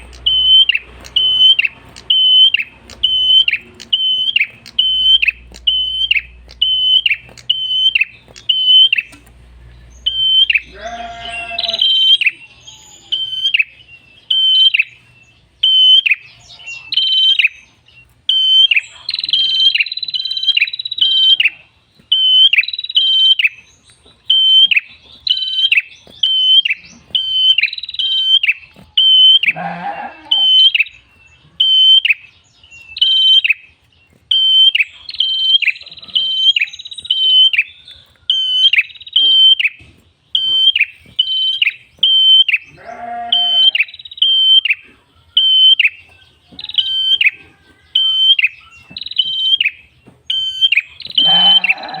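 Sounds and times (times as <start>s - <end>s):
bird chirping: 0.0s - 52.0s
buzzing bird trills: 10.0s - 12.3s, 50.5s - 52.0s.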